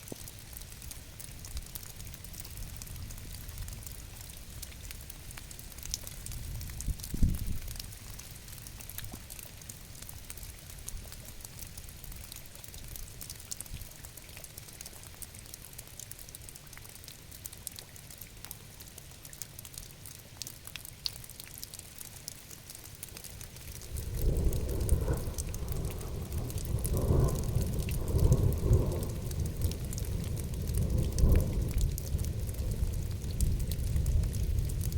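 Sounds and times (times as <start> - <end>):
rain drops ticking: 0.0 - 34.9
thunder rumbling: 23.8 - 34.9.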